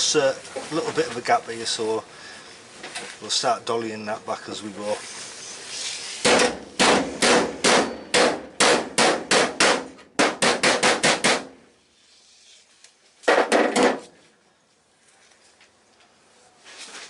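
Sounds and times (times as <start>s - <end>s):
hammer striking steel panel: 6.2s - 11.5s, 13.3s - 14.1s.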